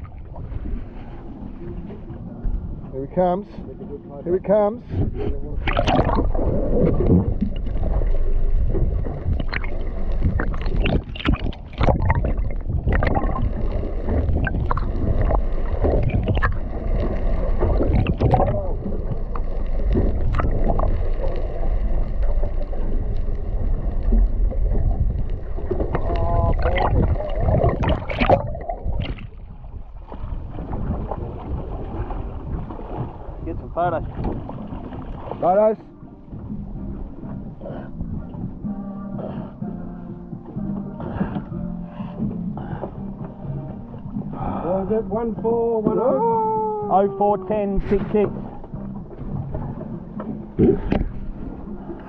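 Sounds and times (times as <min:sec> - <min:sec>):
water sloshing against boat hull: 0:00.0 - 0:52.0
knocks and clatter on boat: 0:01.6 - 0:13.5, 0:14.1 - 0:20.9, 0:24.1 - 0:39.0, 0:39.6 - 0:46.2, 0:47.8 - 0:52.0
wind on microphone: 0:04.9 - 0:19.3, 0:22.8 - 0:35.4.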